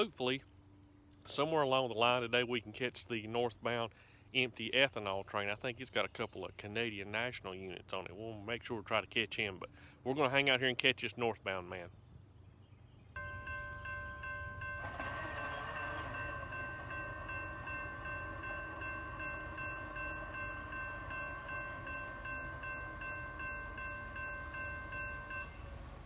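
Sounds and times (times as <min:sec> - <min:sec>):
low train rumble: 0:11.3 - 0:26.0
train horn chord: 0:13.2 - 0:26.0.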